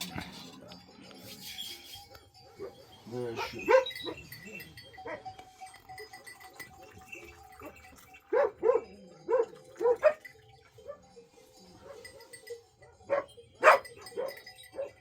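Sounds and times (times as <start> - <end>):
dog barking: 2.4 - 5.3, 8.3 - 15.0.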